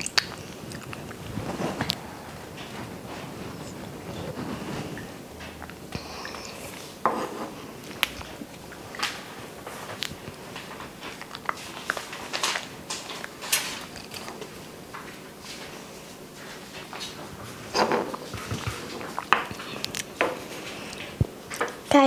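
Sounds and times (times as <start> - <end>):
wet mouth clicks and smacks: 0.0 - 1.2, 11.1 - 14.3
girl chewing: 0.0 - 21.8.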